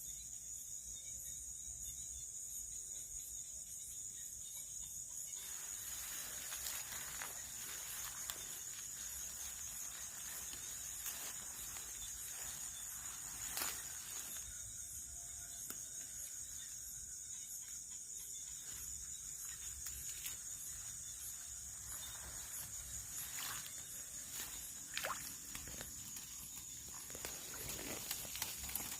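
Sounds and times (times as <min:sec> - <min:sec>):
crickets trilling: 0:00.0 - 0:28.9
clicks and rustles: 0:27.0 - 0:28.9.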